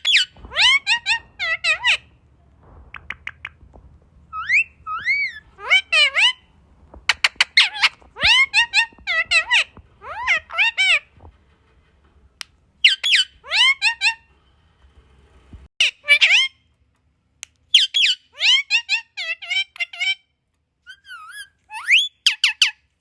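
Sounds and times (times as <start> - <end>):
parrot squawking and chirping: 0.0 - 2.2, 4.3 - 6.5, 7.1 - 11.2, 12.8 - 14.3, 15.8 - 16.7, 17.7 - 23.0.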